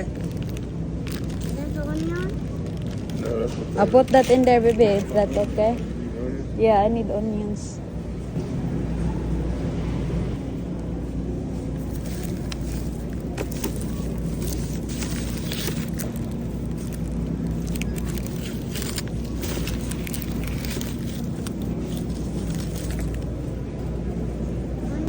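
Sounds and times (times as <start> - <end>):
bags rustling: 0.0 - 5.9, 10.6 - 23.9
low hum: 0.0 - 25.0.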